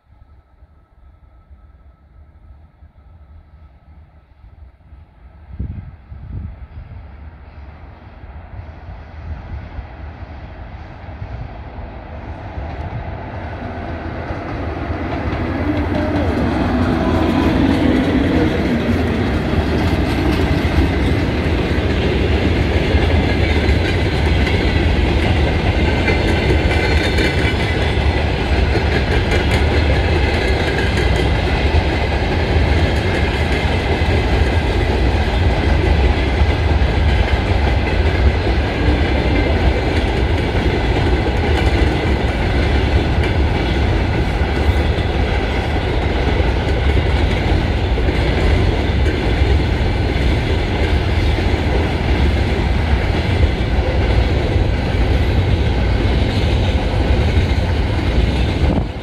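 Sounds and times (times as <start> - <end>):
electric locomotives passing: 0.0 - 59.0
freight wagon wheels clacking on rails: 14.2 - 59.0.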